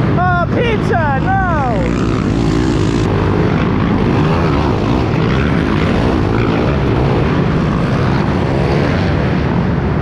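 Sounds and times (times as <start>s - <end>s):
wind rushing over microphone: 0.0s - 10.0s
motorbike engine revving: 1.0s - 9.7s.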